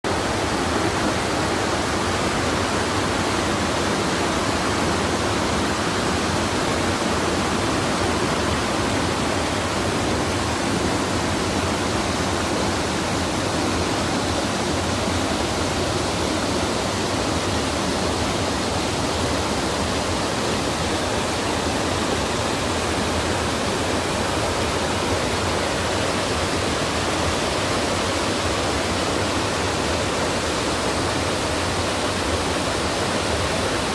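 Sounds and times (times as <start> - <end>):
stream water rushing: 0.0 - 33.9.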